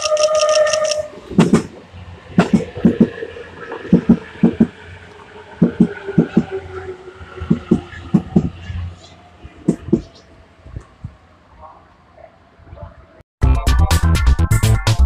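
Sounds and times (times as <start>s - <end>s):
train low rumble: 0.0s - 13.2s
train wheels knocking over joints: 1.3s - 4.8s, 5.6s - 6.6s, 7.4s - 8.7s.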